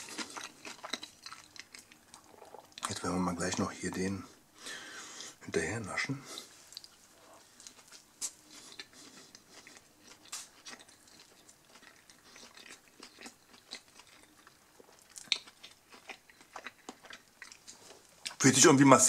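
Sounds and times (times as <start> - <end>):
mouth chewing smacks: 0.0 - 3.0, 6.3 - 18.4.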